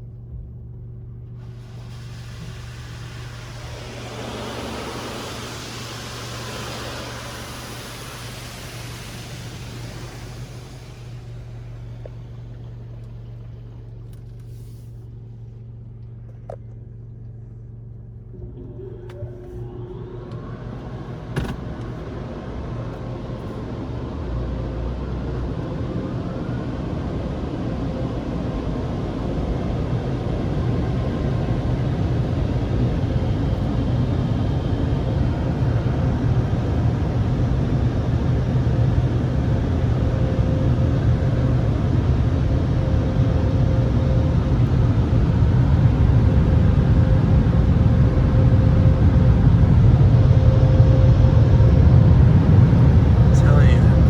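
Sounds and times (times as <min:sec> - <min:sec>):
car idling: 0:00.8 - 0:25.2, 0:52.0 - 0:54.0
dryer blowers whining and rushing: 0:01.2 - 0:14.8, 0:18.2 - 0:54.0.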